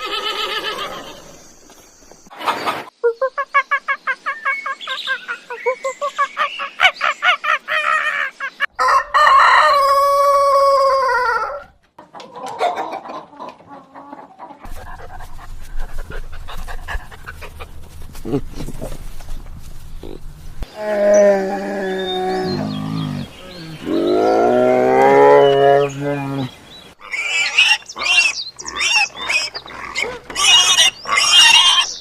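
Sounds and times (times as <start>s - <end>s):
hen cackling: 0.0s - 1.4s
chickens clucking: 2.3s - 6.9s, 11.9s - 20.7s
rooster crowing: 8.8s - 11.7s.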